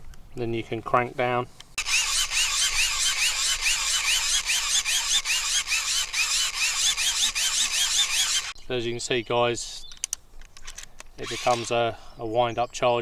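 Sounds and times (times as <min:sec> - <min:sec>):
hand-cranked charger whirring: 0:01.8 - 0:08.6, 0:11.2 - 0:11.7.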